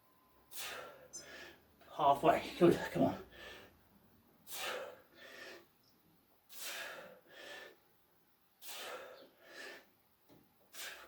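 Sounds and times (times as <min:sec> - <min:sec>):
man breathing hard: 0:00.5 - 0:01.7, 0:03.2 - 0:03.8, 0:04.4 - 0:05.8, 0:06.5 - 0:07.9, 0:08.6 - 0:10.0, 0:10.7 - 0:11.0.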